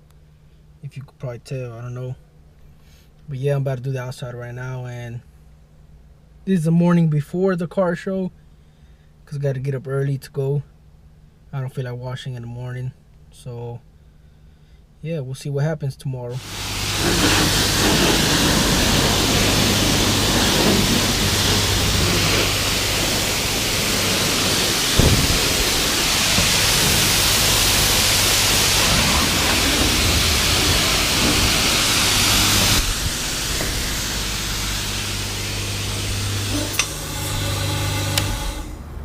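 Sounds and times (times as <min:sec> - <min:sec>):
steady low hum: 0:00.0 - 0:39.0
water spraying onto a car: 0:16.4 - 0:38.8.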